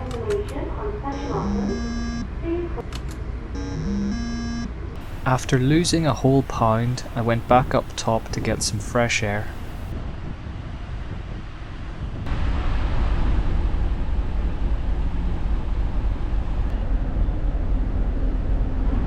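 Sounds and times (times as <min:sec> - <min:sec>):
low ship rumble: 0:00.0 - 0:19.0
wind buffeting microphone: 0:05.0 - 0:16.7.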